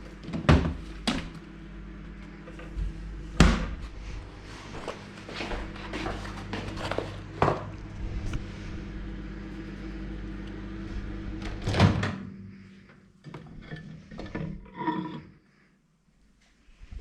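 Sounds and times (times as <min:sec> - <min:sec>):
microwave oven humming: 0:00.0 - 0:15.7
loud clunk of microwave: 0:00.2 - 0:01.4, 0:03.4 - 0:03.8, 0:11.4 - 0:12.4.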